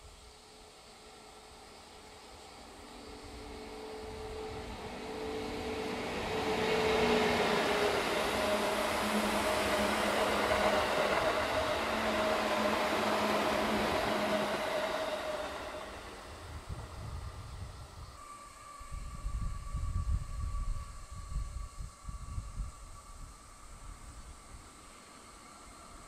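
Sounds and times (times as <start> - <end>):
steady humming tone: 0.0 - 26.0
train wheels on rails: 1.1 - 18.3.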